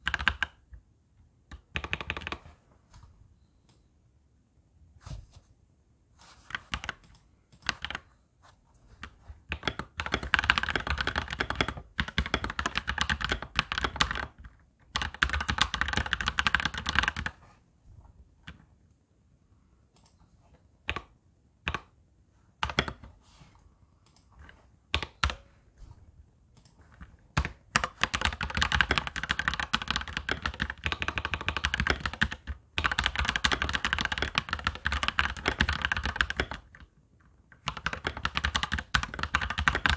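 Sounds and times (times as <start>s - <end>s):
mechanical keyboard typing: 0.0s - 0.8s, 1.5s - 2.6s, 6.5s - 8.1s, 9.0s - 17.4s, 22.6s - 23.1s, 26.6s - 39.9s.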